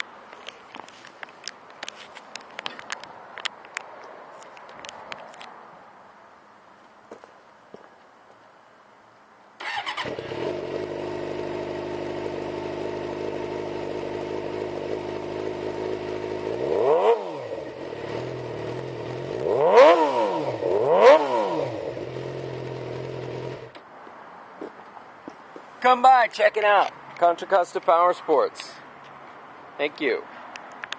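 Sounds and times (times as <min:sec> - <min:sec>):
motorcycle engine idling and revving: 0:09.6 - 0:23.8.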